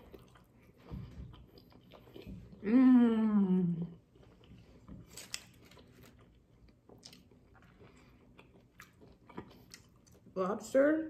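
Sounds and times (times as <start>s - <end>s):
chewing lobster meat: 0.0s - 2.6s, 4.0s - 10.4s
person humming mmm: 2.6s - 4.0s.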